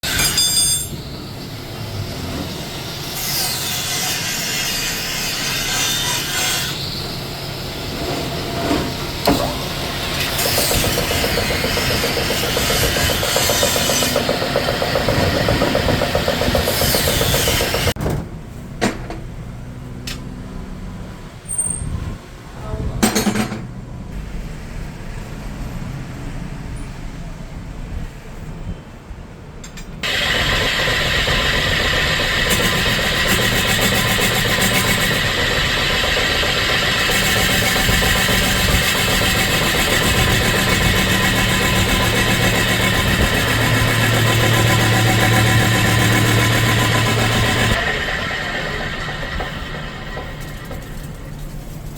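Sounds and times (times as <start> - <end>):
power tool whining on metal wheel: 9.2 - 18.0, 30.0 - 51.8.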